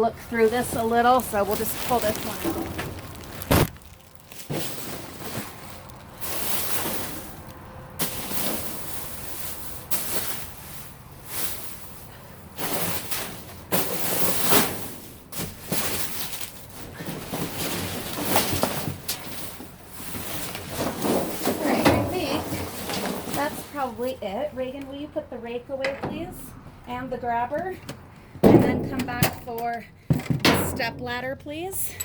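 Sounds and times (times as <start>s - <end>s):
plastic bag rustling: 0.1s - 24.2s.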